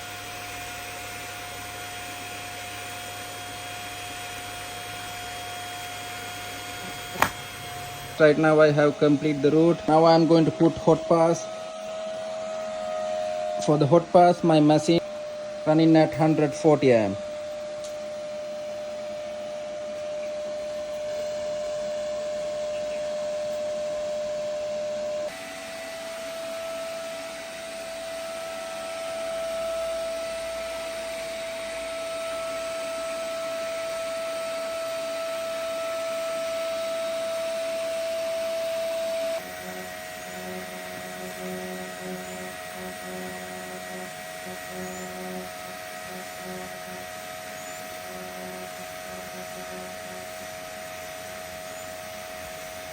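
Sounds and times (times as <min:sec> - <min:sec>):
welding arc humming and hissing: 0:00.0 - 0:52.9
low pulsing: 0:27.9 - 0:52.9.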